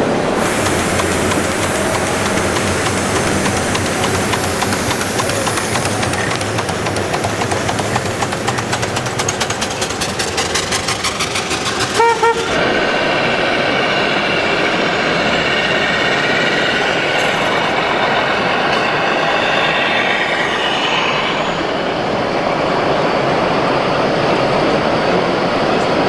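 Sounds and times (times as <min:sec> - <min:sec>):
rushing noise: 0:00.0 - 0:23.4
model truck engine sound: 0:00.0 - 0:26.0
horn toots: 0:11.6 - 0:12.6.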